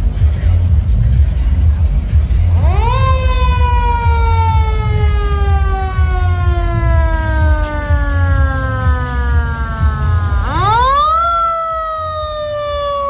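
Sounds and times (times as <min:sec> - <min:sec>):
low rumble: 0:00.0 - 0:13.0
fire engine siren wailing: 0:02.6 - 0:13.0.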